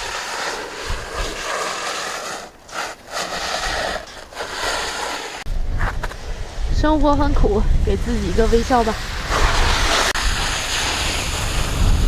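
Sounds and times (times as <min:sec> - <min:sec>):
strong wind buffeting microphone: 0:05.4 - 0:12.0.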